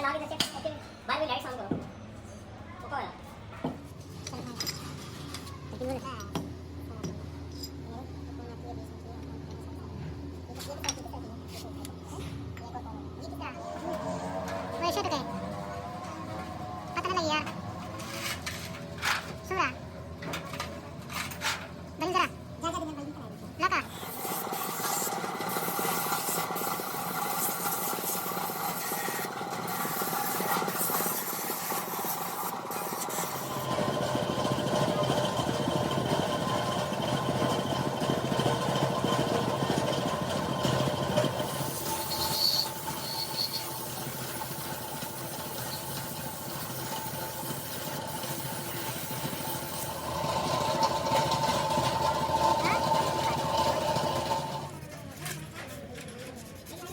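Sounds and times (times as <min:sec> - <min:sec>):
machine with rasping pulse: 0:13.6 - 0:22.2, 0:23.8 - 0:56.9
high squeaks: 0:41.2 - 0:51.4.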